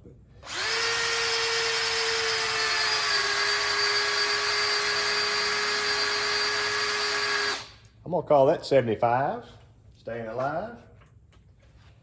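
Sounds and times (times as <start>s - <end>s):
electric drill whine: 0.4s - 7.8s.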